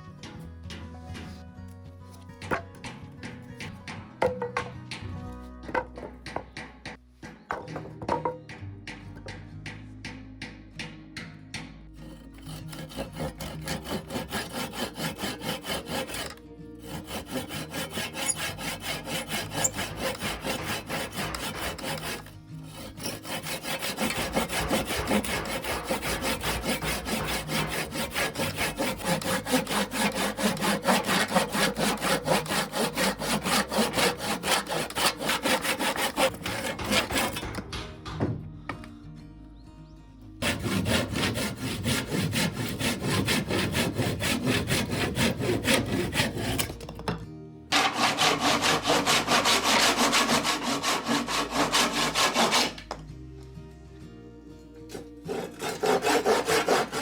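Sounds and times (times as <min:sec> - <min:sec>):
hand saw cutting wood: 0:12.0 - 0:38.2, 0:40.4 - 0:47.0, 0:47.7 - 0:53.0, 0:54.9 - 0:57.0.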